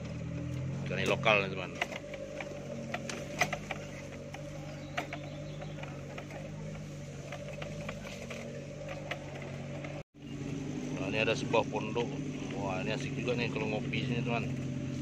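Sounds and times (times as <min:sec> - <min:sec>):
vehicle jolting clicks and knocks: 0:00.0 - 0:10.0
car engine running at low speed: 0:00.0 - 0:15.0.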